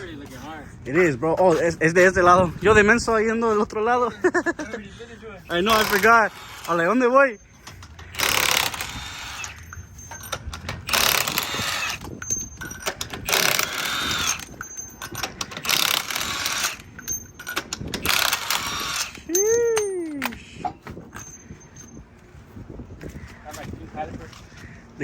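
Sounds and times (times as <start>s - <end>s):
impact wrench bursts: 5.4s - 19.3s.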